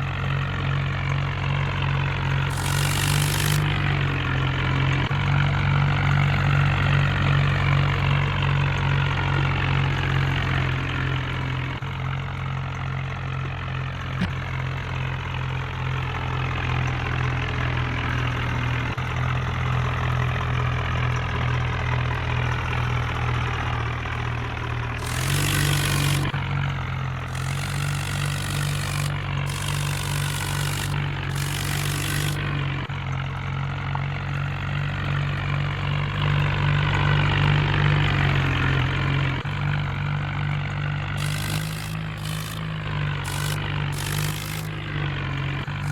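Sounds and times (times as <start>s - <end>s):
short bursts of hiss: 2.5s - 3.8s, 25.0s - 26.4s, 27.3s - 32.5s, 41.2s - 44.9s.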